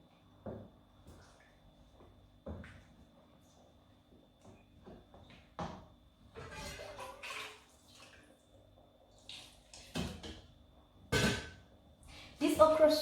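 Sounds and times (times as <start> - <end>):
pot and utensils clattering and scraping: 6.4 - 7.7.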